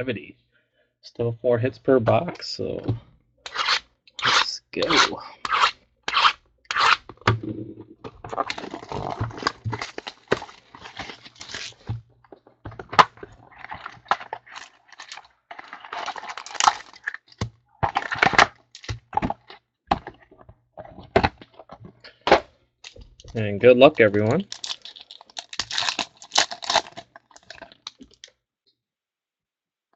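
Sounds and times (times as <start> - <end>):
plastic wrap and cardboard tearing: 8.3 - 11.9, 13.0 - 19.4, 24.1 - 28.3.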